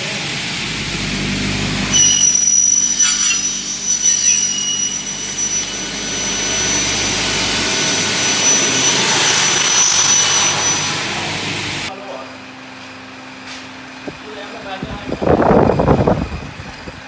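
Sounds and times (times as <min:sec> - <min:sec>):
cutting saw high whine: 0:00.0 - 0:11.9.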